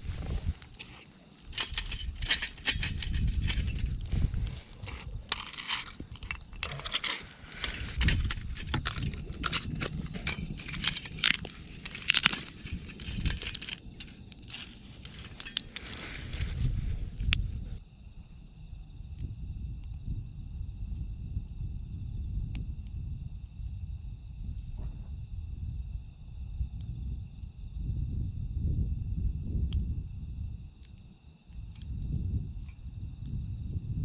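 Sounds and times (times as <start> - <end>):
rustling brush: 0.0 - 17.8
twigs cracking and snapping: 0.6 - 17.5.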